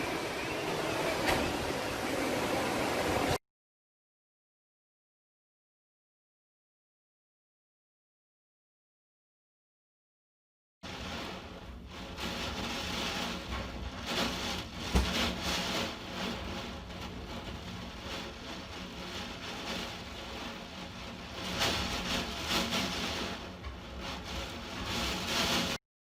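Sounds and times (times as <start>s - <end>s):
rain: 0.0s - 3.4s, 10.8s - 25.8s
storm wind: 0.0s - 3.4s, 10.8s - 25.8s.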